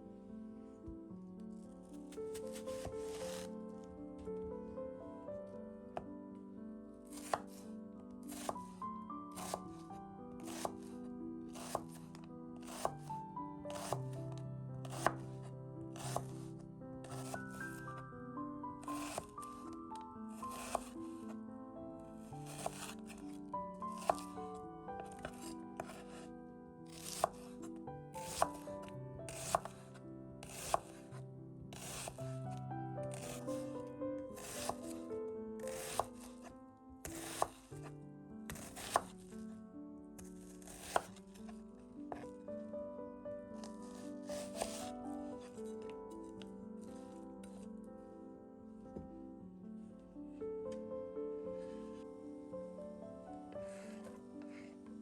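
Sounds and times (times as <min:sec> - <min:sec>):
background music: 0:00.0 - 0:55.0
knife cutting vegetables on board: 0:02.3 - 0:03.5, 0:07.1 - 0:07.6, 0:08.2 - 0:08.7, 0:09.3 - 0:09.8, 0:10.4 - 0:13.1, 0:13.7 - 0:14.1, 0:14.8 - 0:15.4, 0:16.0 - 0:17.9, 0:18.8 - 0:19.7, 0:20.4 - 0:21.3, 0:22.4 - 0:24.4, 0:25.0 - 0:26.2, 0:26.9 - 0:27.6, 0:28.2 - 0:28.7, 0:29.3 - 0:31.1, 0:31.7 - 0:32.3, 0:33.1 - 0:33.8, 0:34.4 - 0:35.0, 0:35.6 - 0:36.5, 0:37.1 - 0:37.7, 0:38.5 - 0:39.2, 0:40.2 - 0:41.5, 0:43.6 - 0:45.8.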